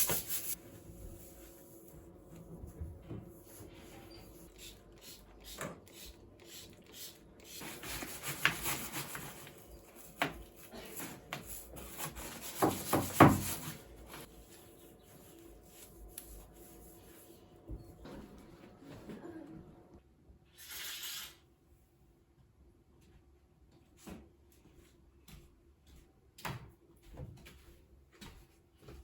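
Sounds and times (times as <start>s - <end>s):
rubbing and scrubbing: 0.0s - 1.8s, 7.5s - 17.5s.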